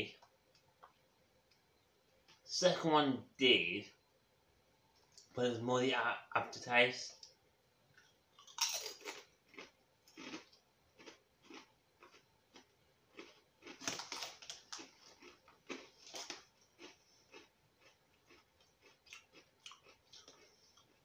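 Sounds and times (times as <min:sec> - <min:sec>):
person chewing crisps: 0:08.4 - 0:21.0.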